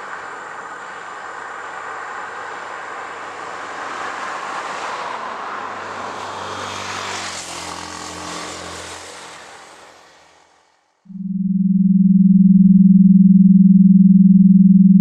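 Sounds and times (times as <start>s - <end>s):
engine passing by: 1.6s - 10.7s.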